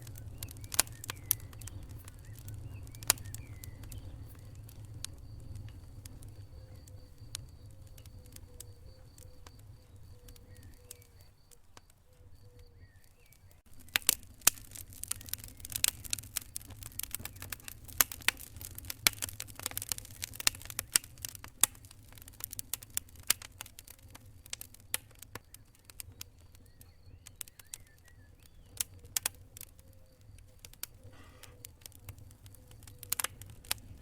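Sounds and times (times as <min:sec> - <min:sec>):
fire crackling and popping: 0:00.0 - 0:34.0.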